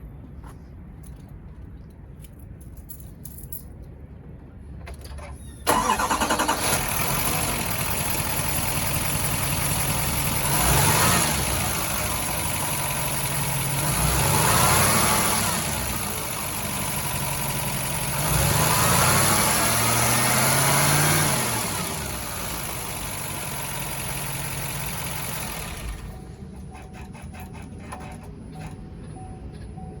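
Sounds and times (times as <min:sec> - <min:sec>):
diesel engine cranking: 0:04.9 - 0:29.1
engine revving: 0:05.7 - 0:26.2
truck engine idling: 0:05.7 - 0:27.1.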